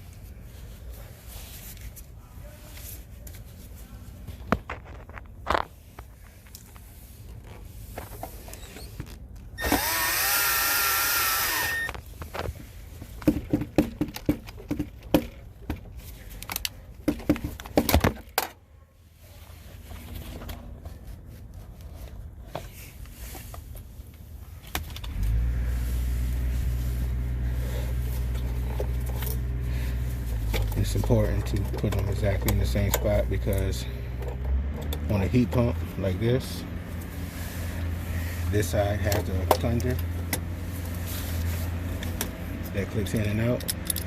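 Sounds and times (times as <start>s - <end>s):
cordless drill whining: 9.6s - 12.0s
clicks and knocks of handled parts: 11.7s - 18.6s, 21.8s - 25.2s, 28.2s - 29.5s, 30.3s - 35.6s, 42.0s - 44.0s.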